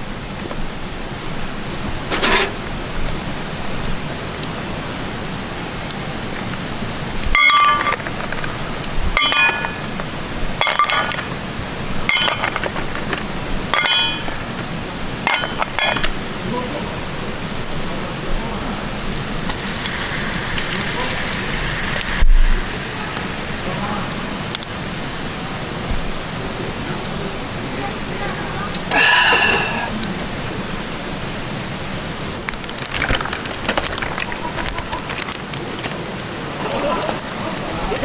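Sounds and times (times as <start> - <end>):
steady hiss: 0.0 - 38.0
utensils clinking on cookware: 2.0 - 2.7, 7.3 - 8.4, 9.2 - 10.0, 10.6 - 11.4, 12.0 - 14.6, 15.2 - 16.2.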